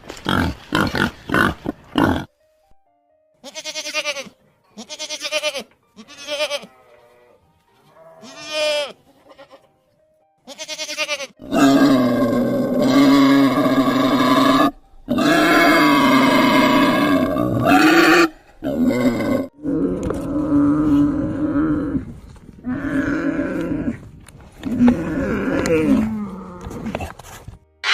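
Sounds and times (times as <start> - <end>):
animal bleating calls: 3.4 - 9.7, 10.4 - 20.1.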